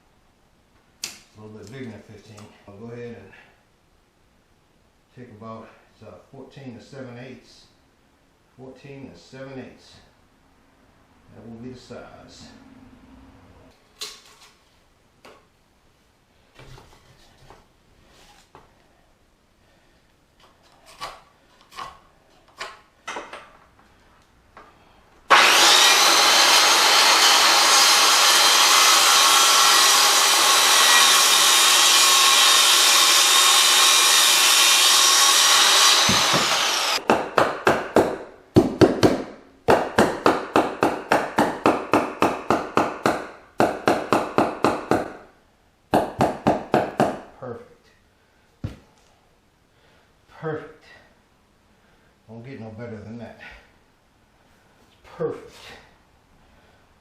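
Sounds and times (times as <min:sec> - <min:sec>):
handsaw strokes: 0:25.3 - 0:37.0
power saw cutting wood: 0:25.3 - 0:37.0.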